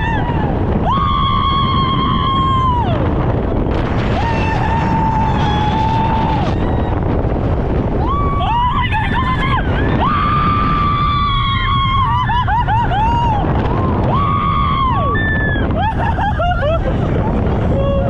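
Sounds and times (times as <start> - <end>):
wind rushing across microphone: 0.0 - 18.0
riders screaming: 4.0 - 7.2, 8.0 - 16.2.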